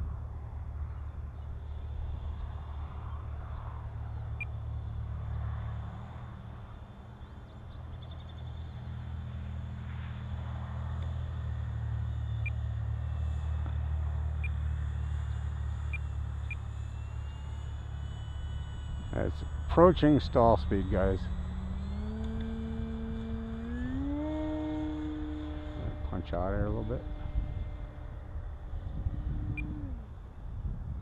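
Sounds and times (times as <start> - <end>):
electric motor whine: 0.0 - 31.0
wind rumbling on microphone: 20.2 - 31.0.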